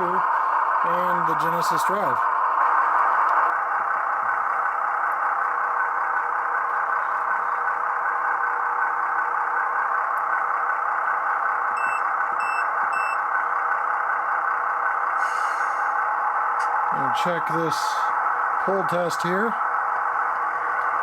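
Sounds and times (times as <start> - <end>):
short electronic beeps: 11.8 - 13.2.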